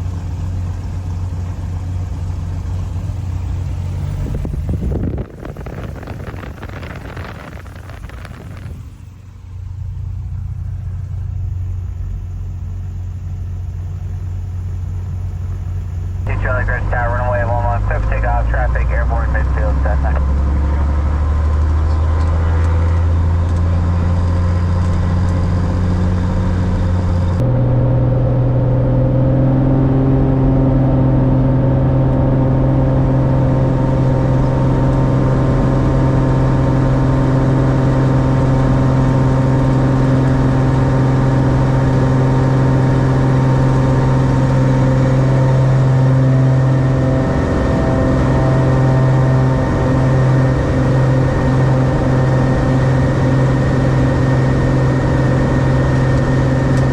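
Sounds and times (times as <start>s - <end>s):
propeller plane engine droning: 0.0s - 56.9s.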